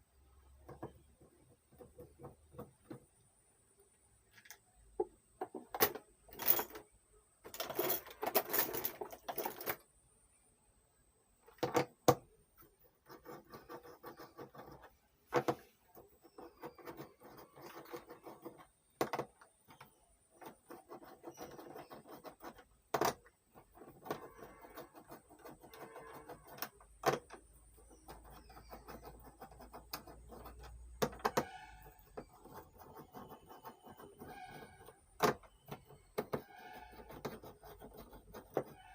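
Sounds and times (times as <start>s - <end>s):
tools and metal parts rattling: 5.5s - 9.8s.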